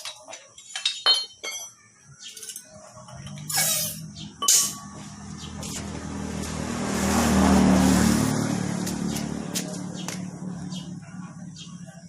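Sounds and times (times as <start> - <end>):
motor vehicle passing by: 3.3 - 12.0.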